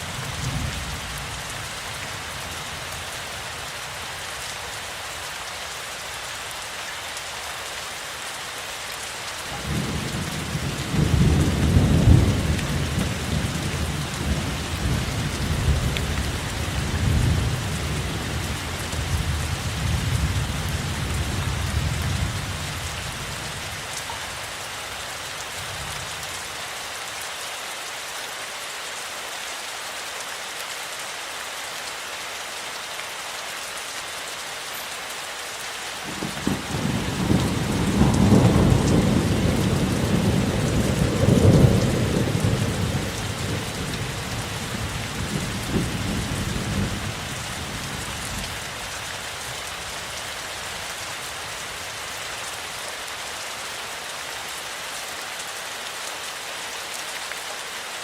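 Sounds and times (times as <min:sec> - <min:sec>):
steady rainfall: 0:00.0 - 0:58.0
thunder rumbling: 0:36.1 - 0:47.1.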